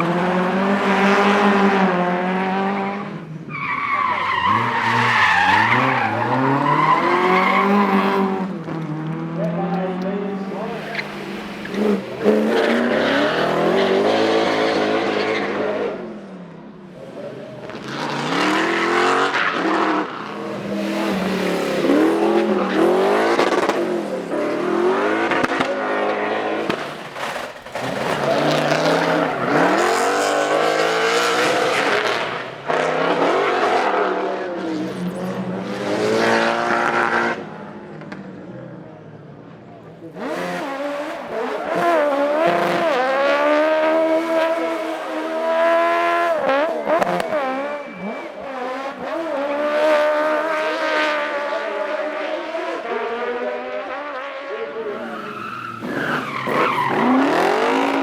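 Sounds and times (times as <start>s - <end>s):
car engines revving: 0.0s - 58.0s
tyres squealing: 55.1s - 58.0s.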